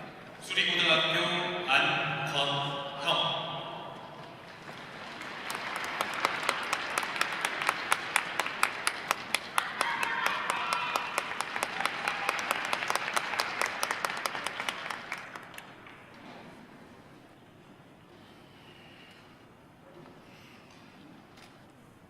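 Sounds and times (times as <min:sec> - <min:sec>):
audience applauding: 0:04.4 - 0:16.1.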